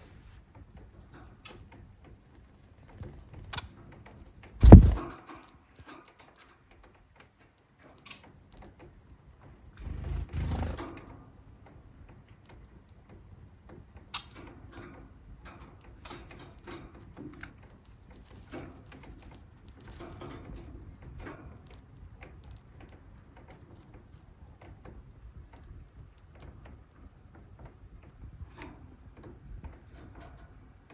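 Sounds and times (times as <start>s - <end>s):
light taps and clicks in cage: 0.5s - 10.2s, 10.8s - 30.9s
loud low thump: 4.6s - 5.0s.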